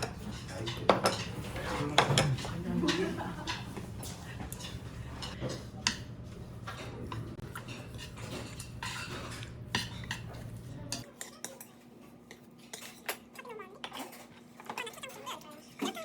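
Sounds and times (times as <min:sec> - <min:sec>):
dishes and cutlery clinking: 0:00.0 - 0:16.0.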